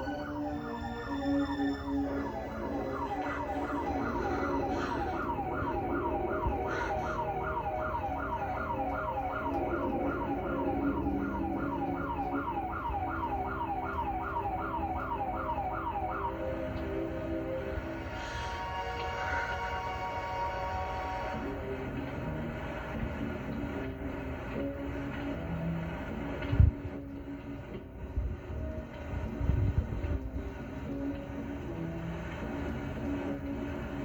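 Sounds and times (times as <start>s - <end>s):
siren yelping: 0.0s - 21.5s.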